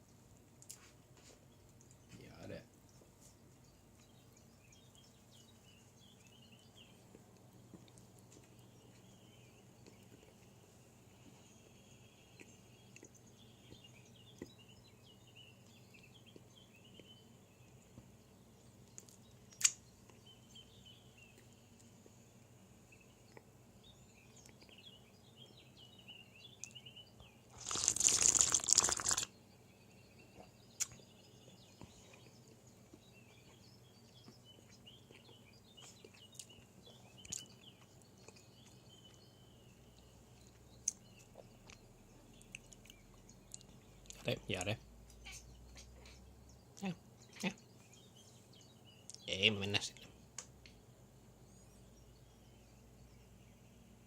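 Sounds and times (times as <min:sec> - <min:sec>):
small birds chirping: 0:00.0 - 0:54.0
crunching rustle: 0:27.5 - 0:29.3.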